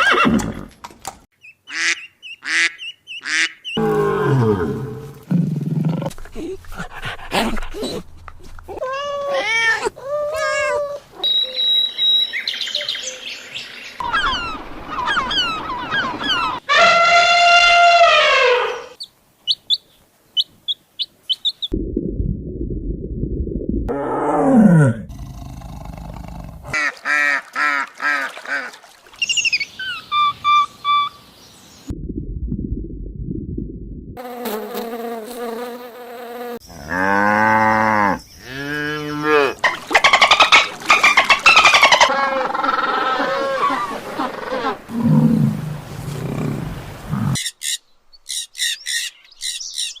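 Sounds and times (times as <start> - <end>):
small bird chirping: 19.0 - 21.7, 47.4 - 50.0
large animal growling roar: 23.9 - 26.8.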